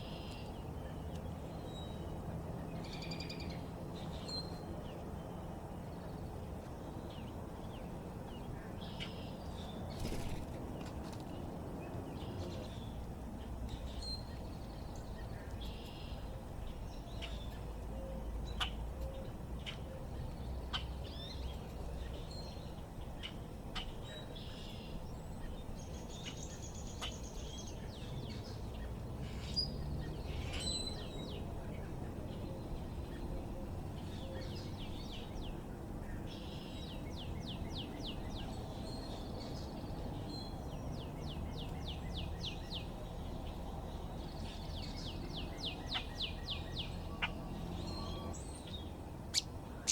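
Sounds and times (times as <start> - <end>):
songbirds chirping: 0.0 - 49.9
bird trill: 49.3 - 49.9.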